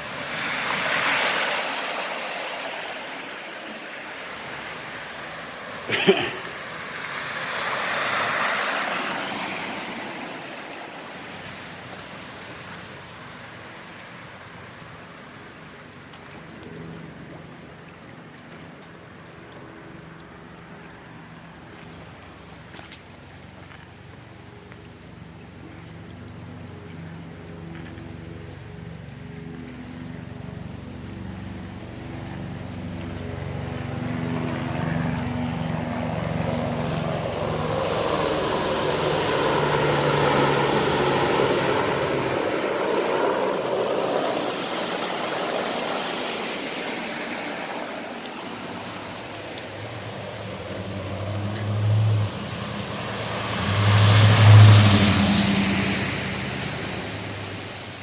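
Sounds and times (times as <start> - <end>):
vehicle passing: 0.0 - 12.5, 30.0 - 58.0
heavy rain: 0.0 - 58.0
running floodwater: 0.0 - 58.0
vehicle engine hum: 25.3 - 58.0.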